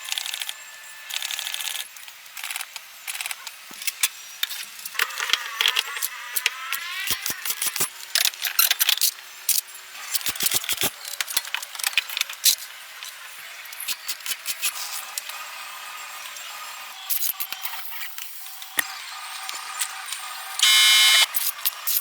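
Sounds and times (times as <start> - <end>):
sharp clicks and clatter: 10.2 - 12.5.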